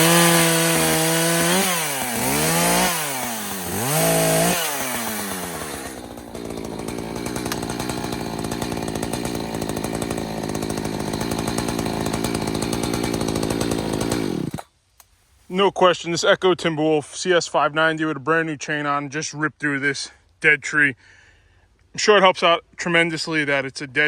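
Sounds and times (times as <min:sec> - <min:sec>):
chainsaw revving: 0:00.0 - 0:14.7.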